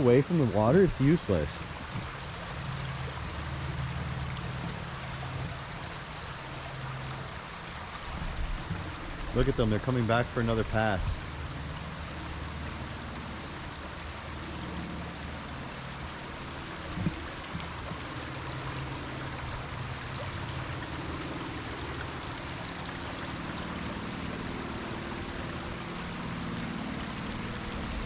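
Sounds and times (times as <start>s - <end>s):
river running over rocks: 0.0s - 28.0s.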